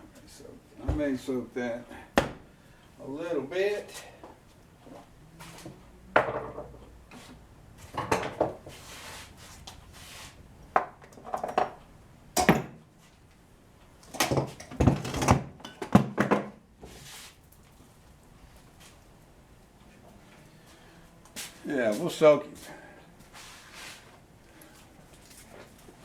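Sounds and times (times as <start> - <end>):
tools and parts clattering: 14.1 - 16.6.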